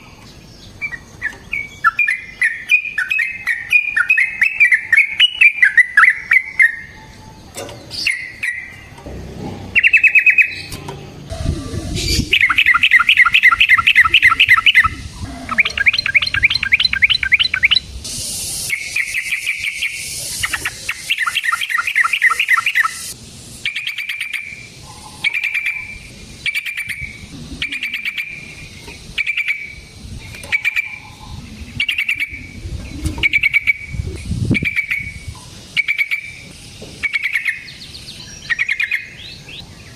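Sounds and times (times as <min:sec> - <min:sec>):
bulbul singing trills: 0:00.0 - 0:09.0, 0:09.7 - 0:39.9
bird short repeated calls: 0:11.4 - 0:17.9.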